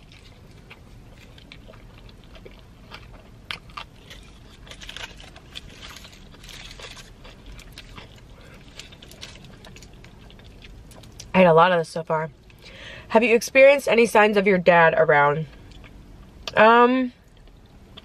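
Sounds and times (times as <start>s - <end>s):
chewing food: 0.0s - 11.3s
low steady hum: 0.0s - 18.0s.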